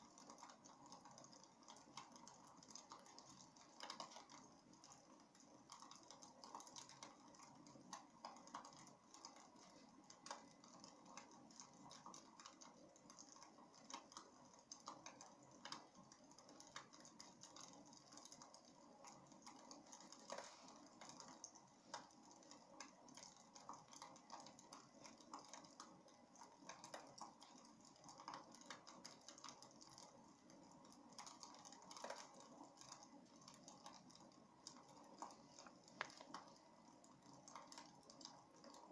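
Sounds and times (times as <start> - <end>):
wood fire crackling: 16.8 - 38.9.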